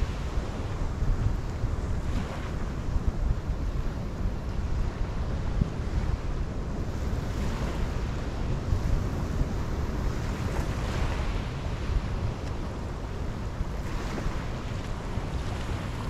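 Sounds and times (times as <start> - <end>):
ocean surf washing on shore: 0.0 - 16.0
wind rumbling on microphone: 0.0 - 16.0.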